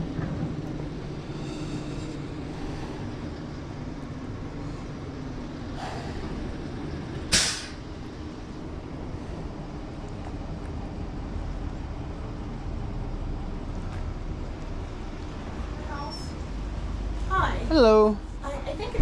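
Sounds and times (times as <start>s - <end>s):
vehicle engine humming: 0.0s - 19.0s
sharp hiss: 7.3s - 7.8s.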